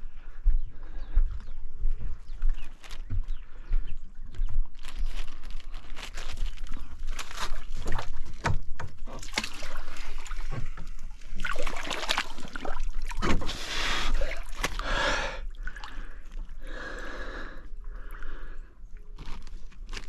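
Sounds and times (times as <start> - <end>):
water splashing and sloshing: 6.1 - 16.7
sharp splashes and knocks: 7.4 - 14.8.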